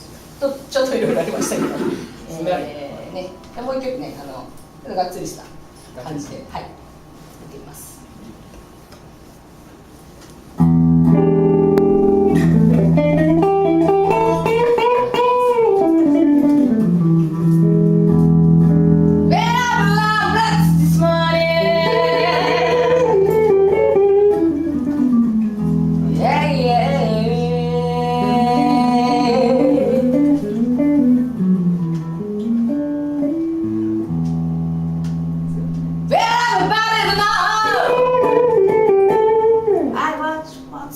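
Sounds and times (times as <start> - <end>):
band playing guitar-led song: 10.6 - 19.4.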